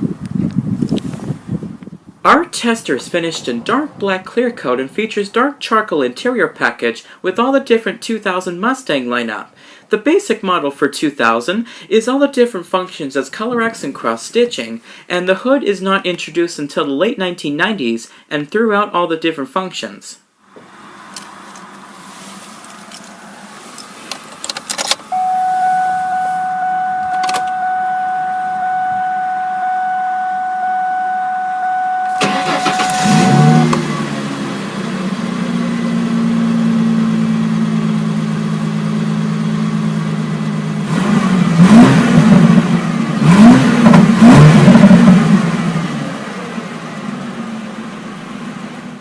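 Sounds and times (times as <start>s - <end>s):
car engine idling and revving: 20.5s - 49.0s
warning chime tone: 25.1s - 34.0s
car engine starter cranking: 27.0s - 27.7s, 32.0s - 34.4s
clicks: 27.0s - 27.7s.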